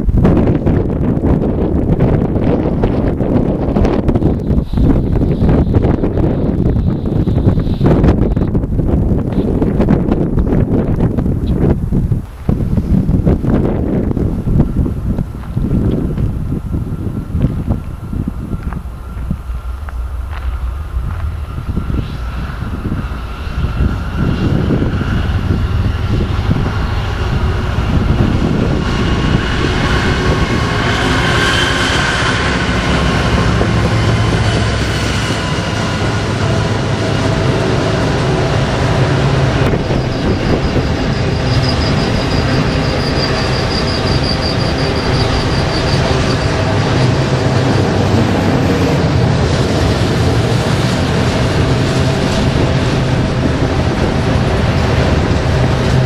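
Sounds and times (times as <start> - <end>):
freight train rail rumble: 0.0 - 56.0
high wheel squeal: 16.6 - 56.0.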